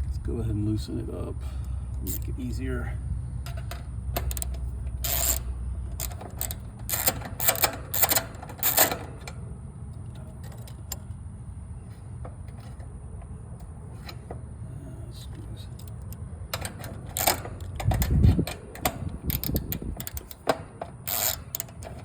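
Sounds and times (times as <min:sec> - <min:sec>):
metal tool clicks and taps: 0:03.4 - 0:09.4, 0:15.8 - 0:22.0.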